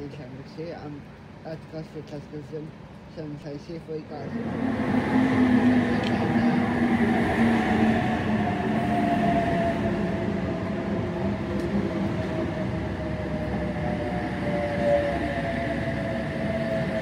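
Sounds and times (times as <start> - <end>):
train wheels rumbling: 3.9 - 17.0.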